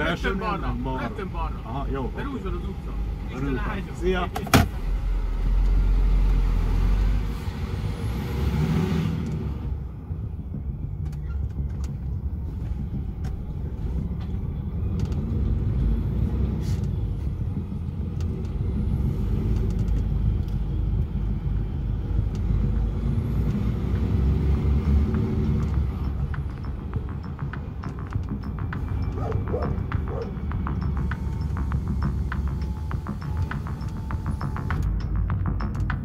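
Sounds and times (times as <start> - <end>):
truck diesel engine running: 15.8 - 36.0.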